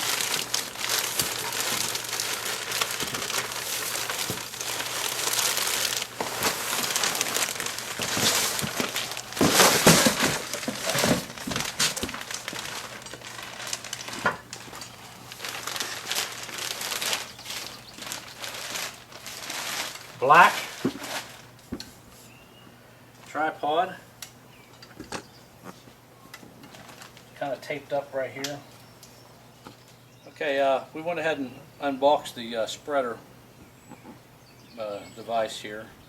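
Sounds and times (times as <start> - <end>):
packaging crinkling and rustling: 0.0 - 21.6, 26.5 - 27.4.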